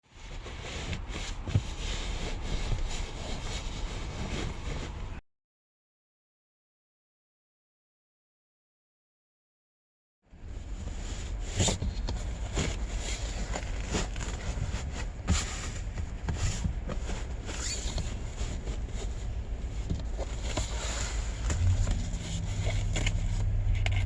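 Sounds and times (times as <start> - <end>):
seat cover rustling and scraping: 0.1 - 5.2, 10.4 - 24.0
steady low hum: 18.2 - 24.0.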